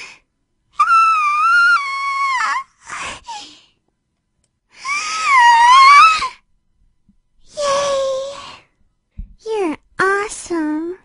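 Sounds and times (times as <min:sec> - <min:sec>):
high squeaky scream: 0:04.9 - 0:06.4.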